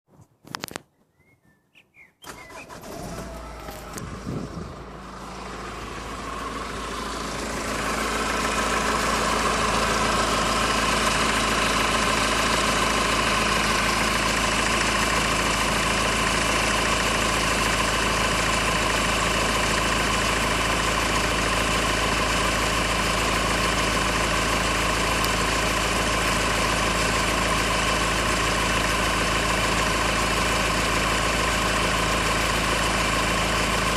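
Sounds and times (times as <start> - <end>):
car whirring noise: 2.2 - 6.5.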